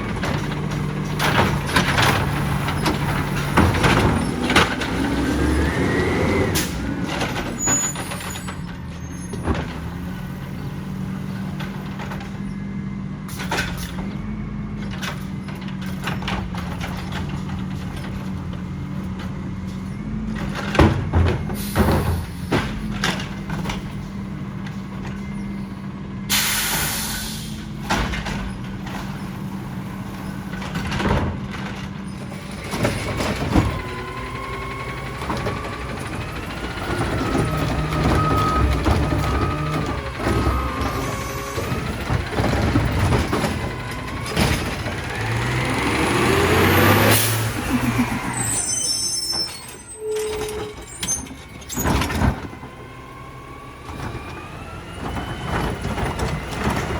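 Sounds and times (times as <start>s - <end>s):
knocks and clanks: 0.0s - 12.5s, 13.3s - 25.8s, 27.6s - 48.6s, 49.3s - 56.9s
garbage truck engine revving: 0.0s - 56.9s
air brake hiss: 26.3s - 27.7s.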